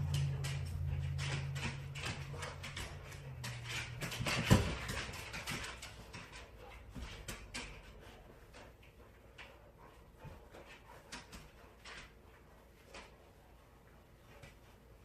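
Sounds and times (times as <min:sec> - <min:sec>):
low hum: 0:00.0 - 0:08.0
dog claws clicking on hard floor: 0:00.0 - 0:13.4.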